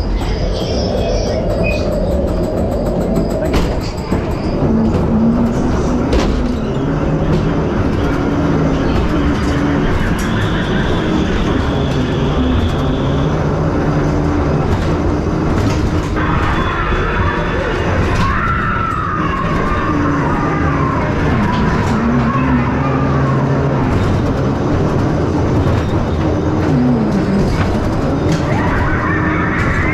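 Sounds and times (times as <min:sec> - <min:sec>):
track clicks: 0:00.0 - 0:16.7
ride car rumbling on track: 0:00.0 - 0:29.9
spooky low music: 0:00.0 - 0:29.9.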